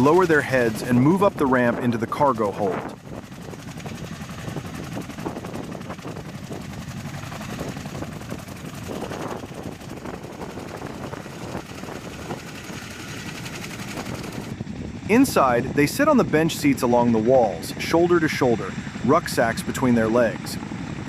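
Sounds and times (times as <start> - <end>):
helicopter engine noise: 0.0 - 21.0
helicopter rotor chop: 0.0 - 21.0
rotor wash wind: 0.0 - 21.0.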